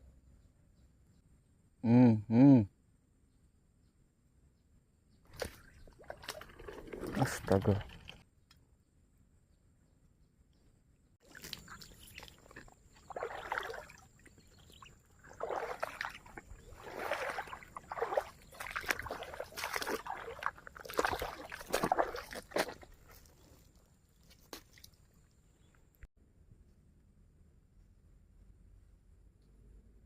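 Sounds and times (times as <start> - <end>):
water splashing and sloshing: 5.3 - 8.2, 11.2 - 25.2.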